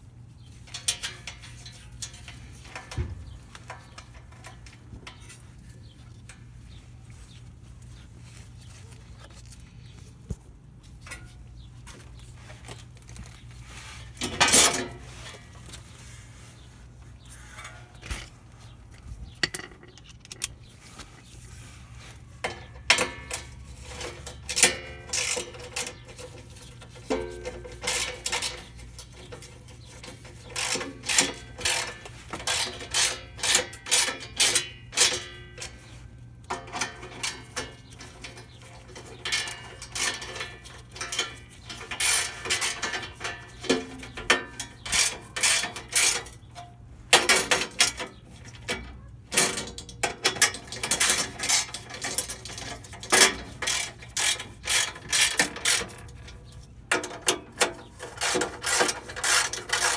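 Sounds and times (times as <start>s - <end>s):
metal hand tools clicking: 22.9s - 35.8s.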